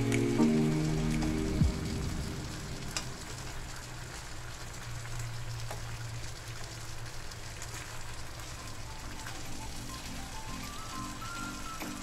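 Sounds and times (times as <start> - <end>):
low steady hum: 0.0 - 7.4
food sizzling in a frying pan: 0.0 - 12.0.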